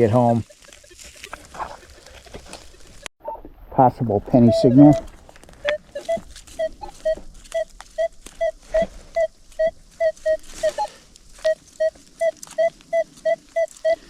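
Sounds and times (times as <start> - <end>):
metal detector beeping: 4.3 - 14.0.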